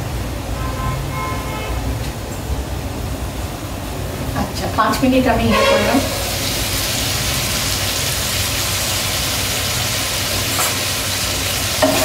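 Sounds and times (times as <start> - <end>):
vegetables sizzling hiss: 6.0 - 12.0.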